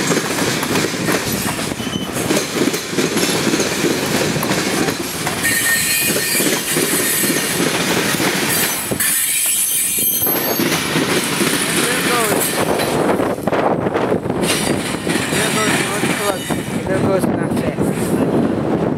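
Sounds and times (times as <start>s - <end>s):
train wheels clattering over rails: 0.0s - 18.9s
high-pitched wheel squeal: 1.8s - 2.2s, 5.4s - 7.5s, 8.5s - 10.6s.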